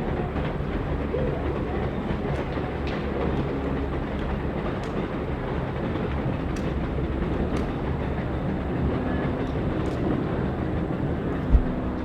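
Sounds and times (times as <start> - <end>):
train rumbling along track: 0.0 - 12.0
sharp track clicks: 2.2 - 8.2.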